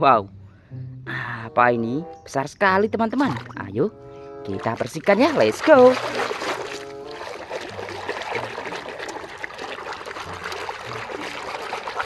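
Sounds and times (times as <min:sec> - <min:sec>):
water trickling and splashing: 0:03.1 - 0:03.8, 0:04.4 - 0:12.0
water dripping and sloshing: 0:03.2 - 0:03.7, 0:04.5 - 0:12.0.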